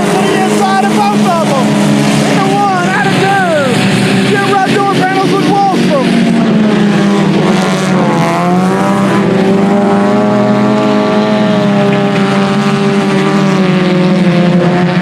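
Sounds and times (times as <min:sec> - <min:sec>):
race car engines running hard: 0:00.0 - 0:15.0.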